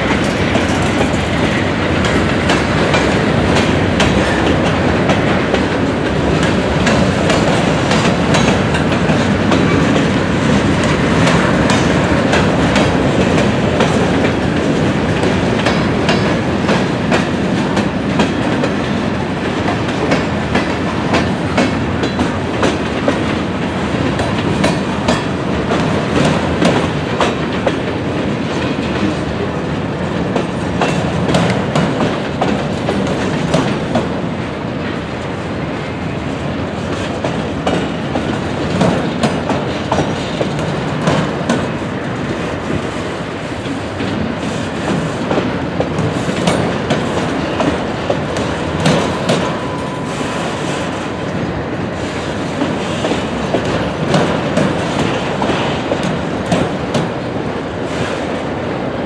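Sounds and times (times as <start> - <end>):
wheels clicking over rail joints: 0.0 - 29.5
freight train rumble: 0.0 - 59.0.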